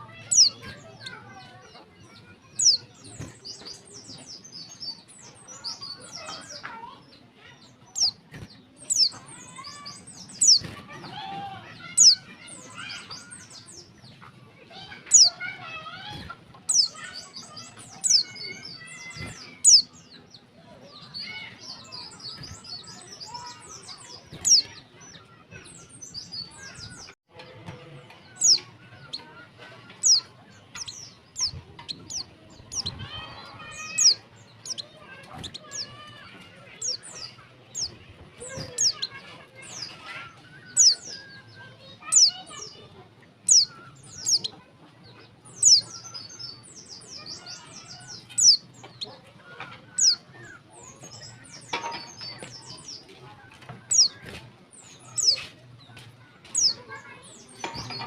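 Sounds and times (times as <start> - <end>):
soft bird twittering: 0.0 - 27.2, 28.1 - 58.0
high sharp bird chirps: 0.2 - 1.2, 7.6 - 10.8, 11.7 - 14.0, 14.8 - 20.2, 21.0 - 27.2, 29.9 - 42.7, 43.4 - 44.6, 45.5 - 49.1.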